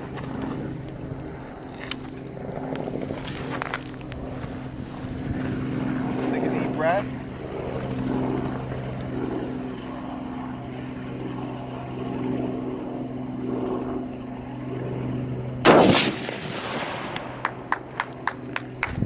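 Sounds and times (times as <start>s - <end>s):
steady low hum: 0.0s - 19.0s
rifle shot with echo: 15.6s - 17.6s.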